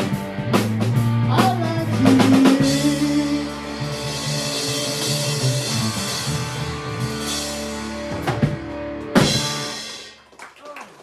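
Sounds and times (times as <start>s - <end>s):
live rock band playing: 0.0s - 10.4s.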